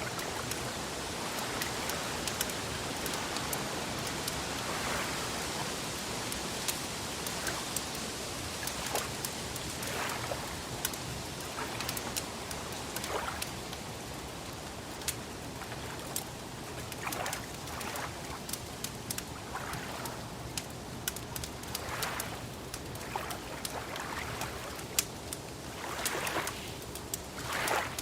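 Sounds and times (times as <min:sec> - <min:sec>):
wood fire crackling and popping: 0:18.5 - 0:19.4, 0:20.4 - 0:22.0, 0:24.8 - 0:25.6, 0:26.7 - 0:27.4.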